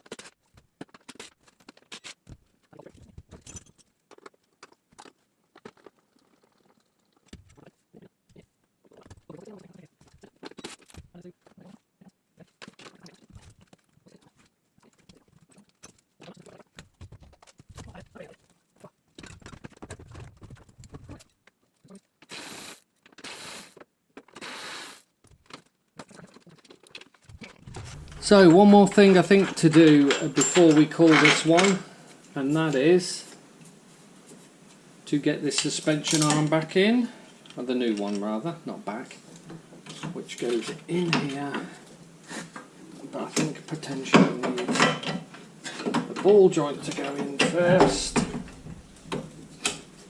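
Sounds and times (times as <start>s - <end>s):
hand tools and metal parts clicking: 2.8s - 7.6s, 25.3s - 31.9s
hand tools clicking and knocking: 26.0s - 31.8s, 43.3s - 50.0s.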